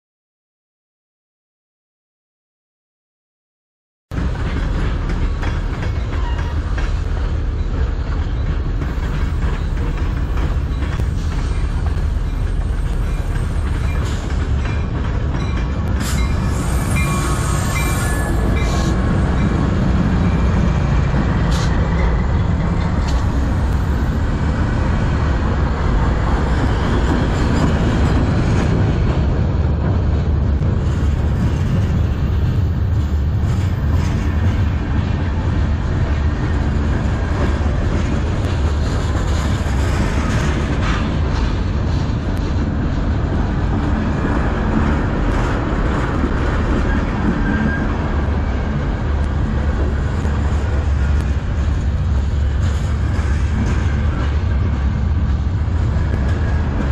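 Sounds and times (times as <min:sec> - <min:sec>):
wheels rumbling on rail: 0:04.1 - 0:56.9
diesel locomotive engines: 0:04.2 - 0:56.9
faint high wheel squeal: 0:16.0 - 0:19.0, 0:46.8 - 0:48.0.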